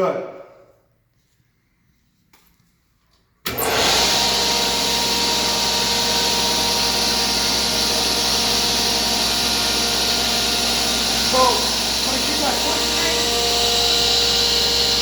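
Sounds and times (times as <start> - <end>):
table saw running: 3.5 - 15.0.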